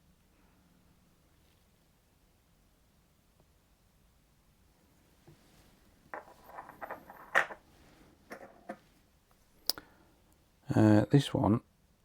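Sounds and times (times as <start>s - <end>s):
coins clicking on a surface: 6.2s - 7.6s
coins rattling: 6.2s - 7.6s.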